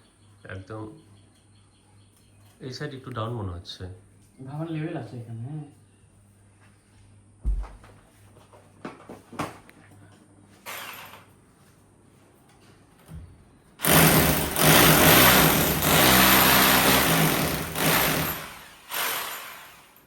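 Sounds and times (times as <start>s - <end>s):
electric drill boring into wall: 10.7s - 11.2s, 13.8s - 20.0s.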